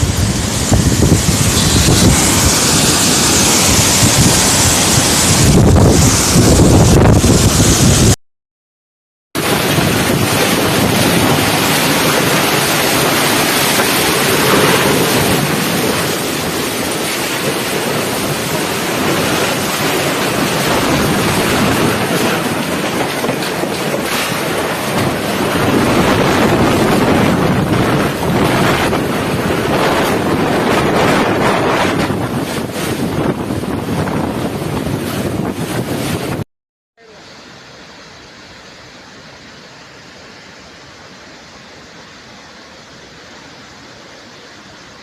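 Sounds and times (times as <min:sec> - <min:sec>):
storm wind buffeting microphone: 0:00.0 - 0:08.2, 0:09.4 - 0:36.4.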